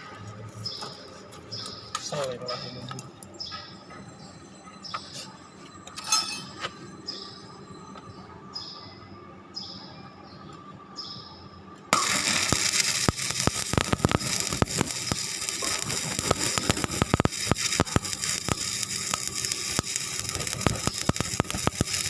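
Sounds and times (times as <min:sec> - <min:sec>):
welding arc crackling: 0:11.9 - 0:22.0.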